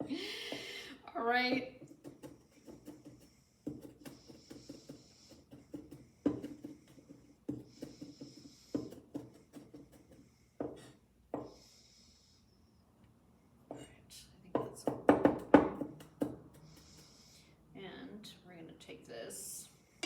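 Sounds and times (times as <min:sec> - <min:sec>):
knife chopping on cutting board: 0:01.8 - 0:11.5.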